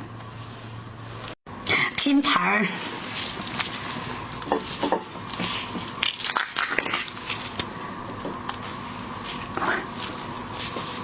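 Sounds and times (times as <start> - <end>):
crunching and chewing: 3.1 - 11.0.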